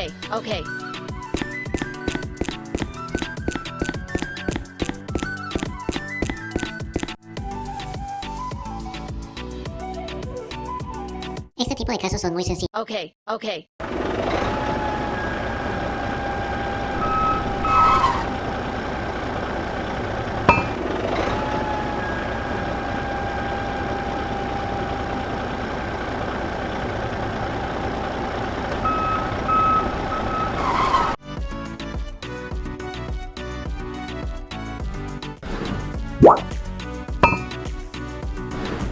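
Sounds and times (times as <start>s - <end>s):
music: 0.0s - 11.5s, 31.2s - 38.9s
short beeps: 17.0s - 18.3s, 28.8s - 30.5s, 37.2s - 37.5s
small motor whining: 17.0s - 18.3s.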